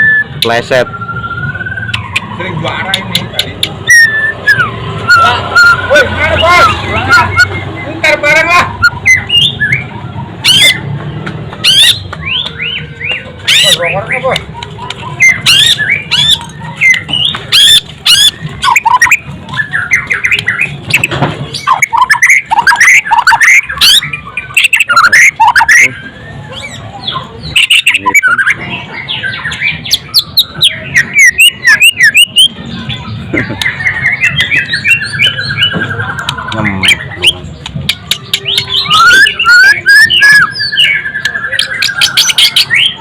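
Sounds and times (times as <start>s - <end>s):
bird singing whistled phrases: 0.0s - 8.0s, 8.6s - 10.9s, 11.6s - 33.0s, 33.7s - 43.0s
sharp clicking bird notes: 1.6s - 5.3s, 10.5s - 25.9s, 33.4s - 43.0s.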